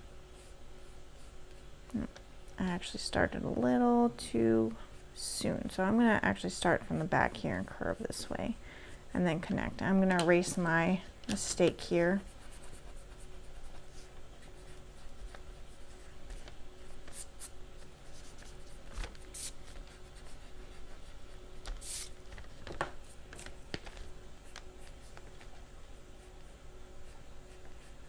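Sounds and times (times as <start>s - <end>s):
eraser rubbing on paper: 11.6s - 22.2s
pencil scratching on paper: 11.6s - 22.2s, 26.0s - 28.0s.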